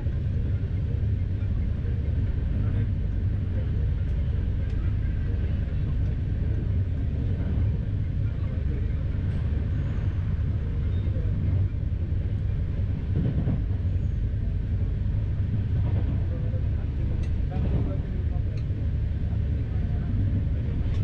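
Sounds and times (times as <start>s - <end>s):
train wheels on rail: 5.8s - 21.0s.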